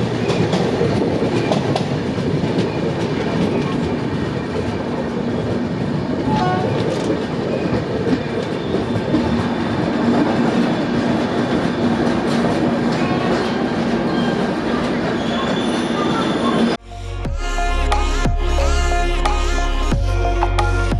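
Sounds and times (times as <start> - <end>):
train wheels on track: 0.0 - 16.8
faint wheel squeals: 14.1 - 16.8.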